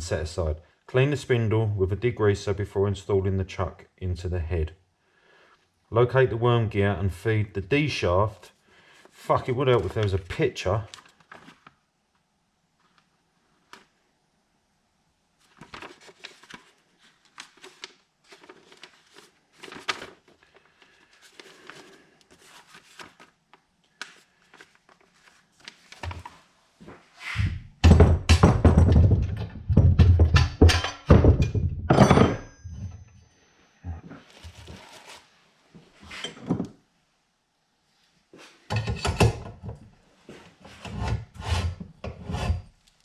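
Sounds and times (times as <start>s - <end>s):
light knocks and clatter of parts: 27.9s - 33.2s, 38.7s - 39.9s.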